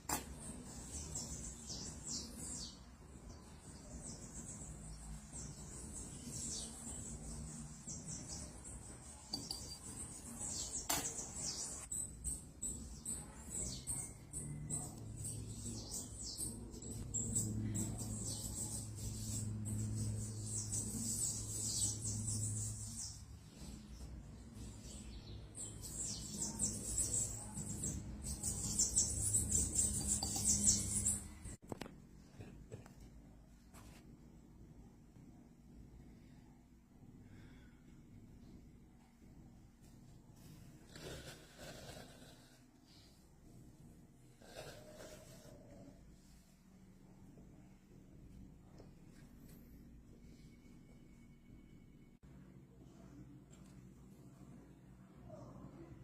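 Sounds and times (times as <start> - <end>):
faint low hum: 0.0 - 56.0
small bird chirping: 0.1 - 31.6.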